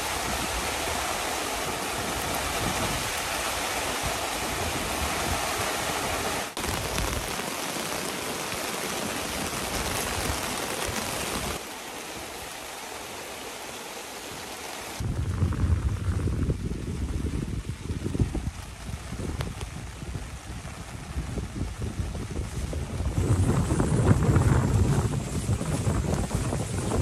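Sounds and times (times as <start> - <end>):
heavy rain hissing: 0.0 - 27.0
low rumble: 15.0 - 18.5.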